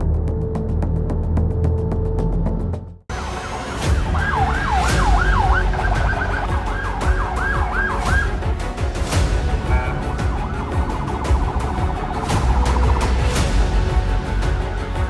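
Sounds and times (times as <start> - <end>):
music: 0.0 - 15.0
steady low rumble: 0.0 - 15.0
police siren yelping: 3.6 - 8.3.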